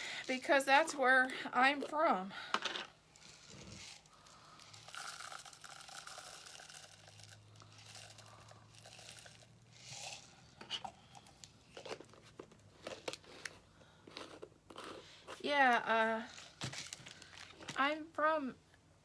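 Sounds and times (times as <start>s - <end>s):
craft materials rustling: 16.2s - 17.8s.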